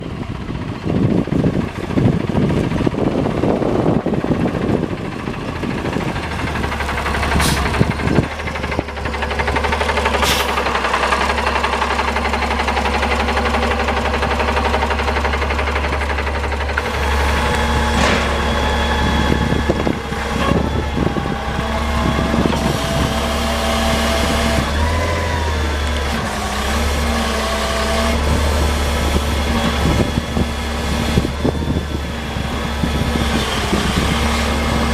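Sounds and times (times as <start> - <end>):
truck engine starting and idling: 0.0 - 34.9.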